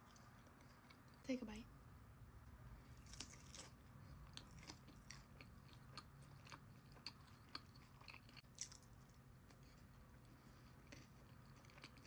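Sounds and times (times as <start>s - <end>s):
chewing food: 0.0s - 1.3s, 2.8s - 12.0s.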